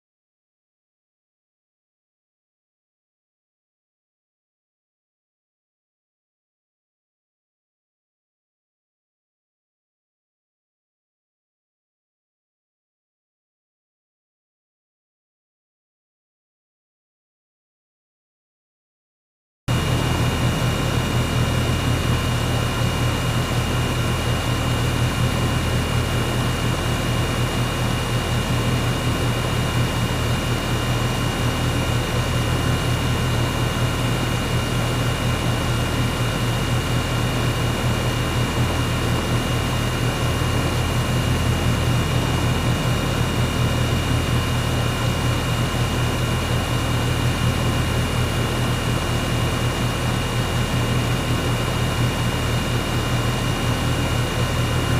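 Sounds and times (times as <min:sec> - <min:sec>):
air conditioner humming: 0:19.7 - 0:54.9.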